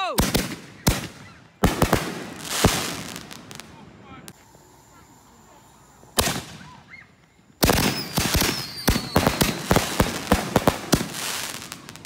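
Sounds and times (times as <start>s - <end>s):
firework cracks and pops: 0.2s - 4.5s, 6.1s - 12.0s
falling firework whistle: 4.3s - 12.0s
firework bang: 6.2s - 6.8s.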